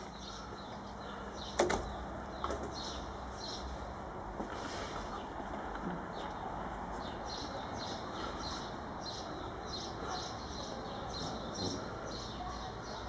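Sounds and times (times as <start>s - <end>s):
small bird chirping: 0.0s - 3.7s
low background noise: 0.0s - 13.0s.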